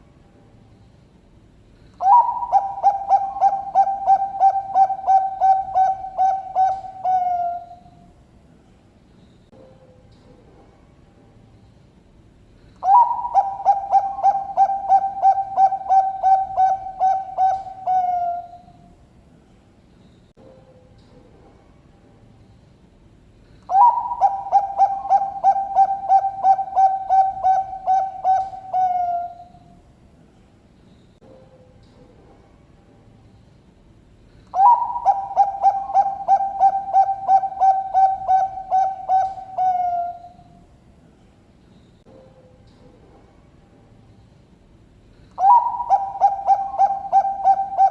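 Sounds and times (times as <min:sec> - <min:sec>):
dove cooing song: 0:02.0 - 0:08.1, 0:12.8 - 0:18.9, 0:23.6 - 0:29.8, 0:34.5 - 0:40.6, 0:45.4 - 0:47.9.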